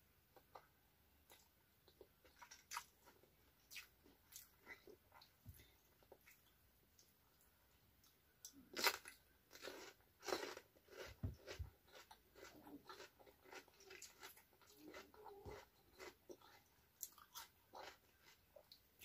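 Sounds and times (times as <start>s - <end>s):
crunchy chewing: 8.4s - 18.8s.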